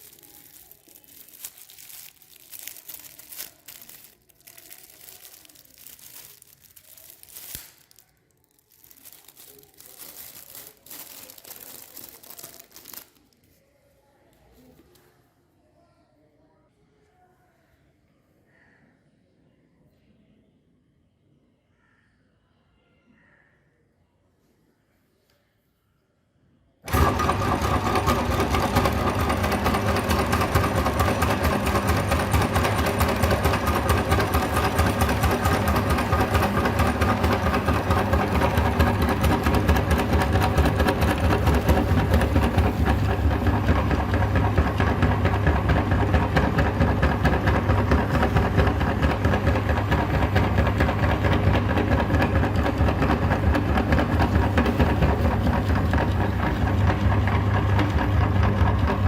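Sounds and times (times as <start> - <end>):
meat grinder motor humming: 26.9 - 59.0.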